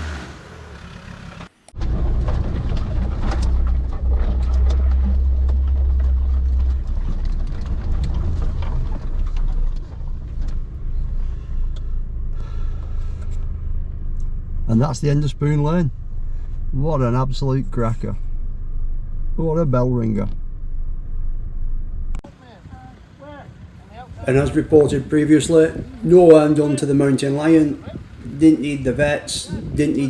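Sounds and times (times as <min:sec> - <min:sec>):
off-road vehicle engine rumbling: 0:00.0 - 0:30.0
knocks and rattles: 0:01.8 - 0:14.7.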